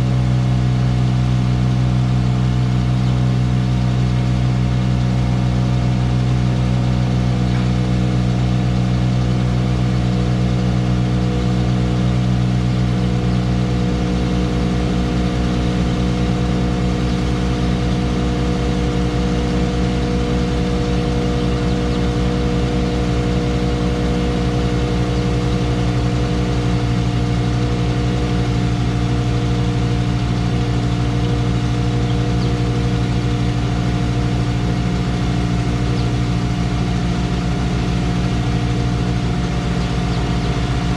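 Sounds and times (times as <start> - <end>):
heavy equipment engine running: 0.0 - 40.9.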